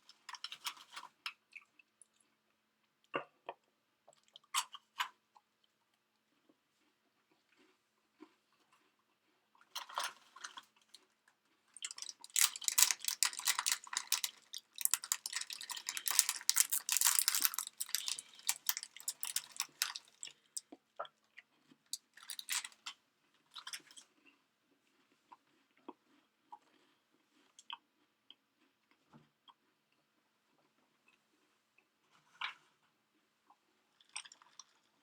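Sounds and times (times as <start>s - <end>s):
crunchy snack being chewed: 6.2s - 29.7s.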